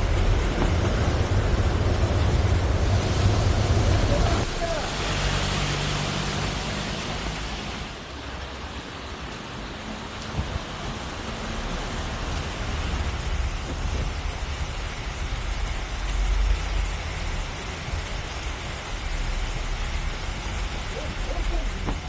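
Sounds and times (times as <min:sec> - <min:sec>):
deep rumble: 0:00.0 - 0:04.6
heavy rain falling: 0:00.0 - 0:22.0.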